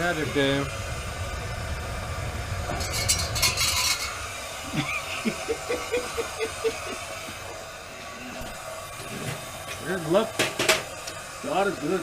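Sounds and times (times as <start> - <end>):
low rumble: 0.0 - 4.6
metallic clinking: 2.8 - 4.2
short rhythmic laugh: 4.6 - 7.3.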